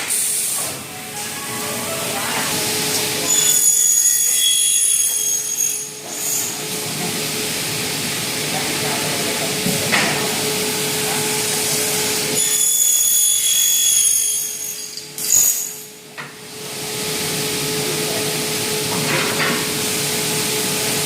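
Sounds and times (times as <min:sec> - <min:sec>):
high-pitched cutting whine: 0:00.8 - 0:06.6.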